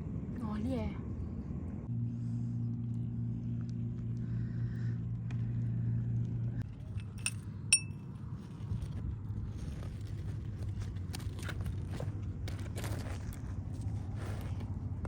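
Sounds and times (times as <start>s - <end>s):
low motor hum: 0.0s - 15.0s
sharp clinks with ringing: 7.0s - 8.0s.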